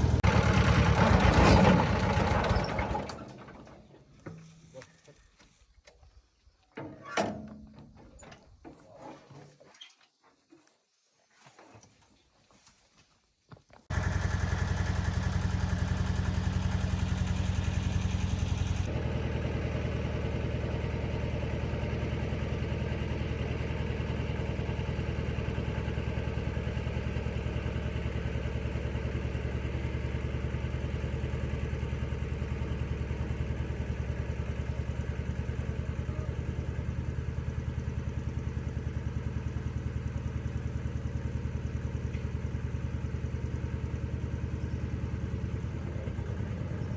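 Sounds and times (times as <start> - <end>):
heavy vehicle engine running: 0.0 - 3.6, 13.9 - 46.9.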